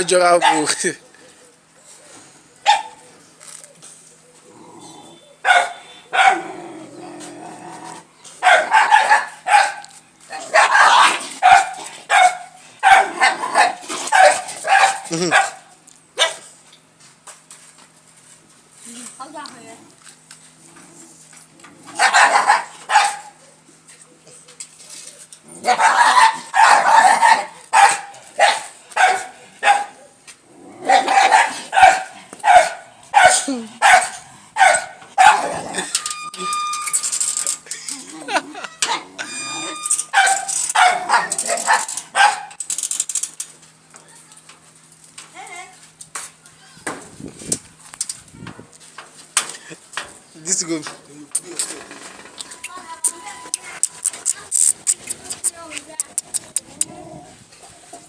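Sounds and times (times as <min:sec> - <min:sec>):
dog barking: 0:00.3 - 0:00.8, 0:02.6 - 0:03.0, 0:05.4 - 0:06.5, 0:08.4 - 0:16.5, 0:22.0 - 0:23.4, 0:25.6 - 0:30.1, 0:30.9 - 0:35.9, 0:38.9 - 0:42.6.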